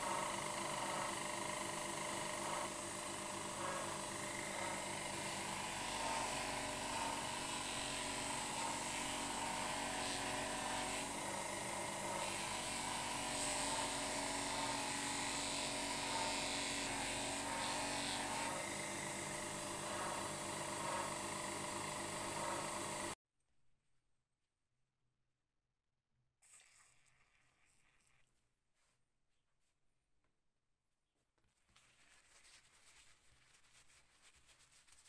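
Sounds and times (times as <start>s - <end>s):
electric power tool running: 0.0s - 23.2s.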